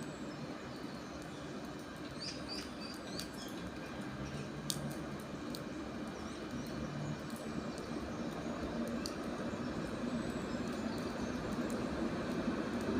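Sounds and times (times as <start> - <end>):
steady low hum: 0.0 - 12.9
small bird chirping: 2.1 - 4.5.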